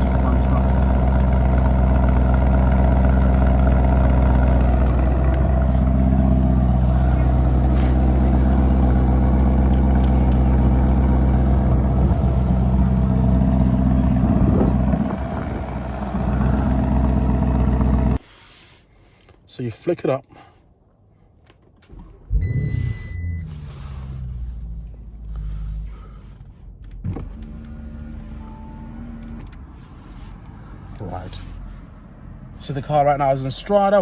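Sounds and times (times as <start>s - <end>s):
car engine idling: 0.0s - 18.2s, 21.9s - 30.3s.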